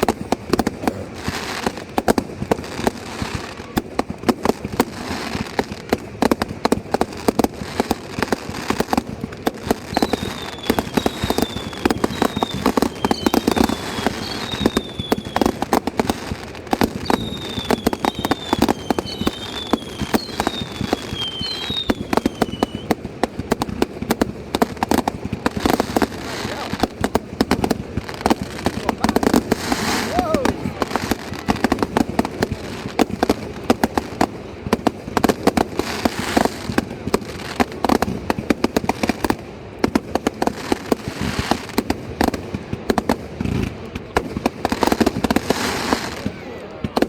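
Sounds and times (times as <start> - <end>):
fireworks bangs and crackling: 0.0 - 47.0
falling firework whistles: 9.6 - 23.0.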